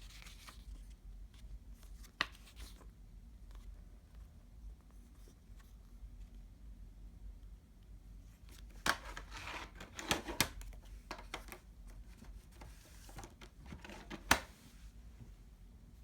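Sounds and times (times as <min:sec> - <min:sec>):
cd case clicking and knocking: 0:08.8 - 0:11.8, 0:12.6 - 0:14.5.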